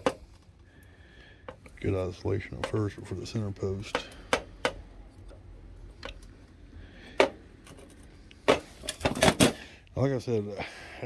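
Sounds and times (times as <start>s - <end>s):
engine parts clicking and knocking: 1.4s - 6.4s.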